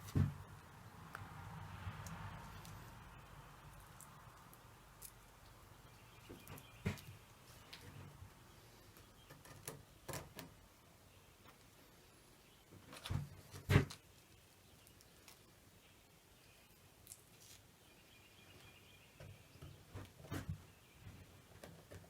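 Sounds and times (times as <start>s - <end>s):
knocks and clicks of objects handled: 0.0s - 0.4s, 6.2s - 8.2s, 9.0s - 10.6s, 12.7s - 14.0s.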